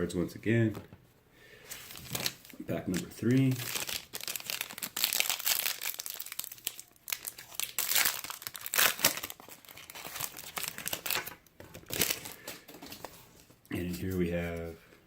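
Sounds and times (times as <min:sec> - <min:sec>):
wrapper tearing and crinkling: 0:01.8 - 0:12.6.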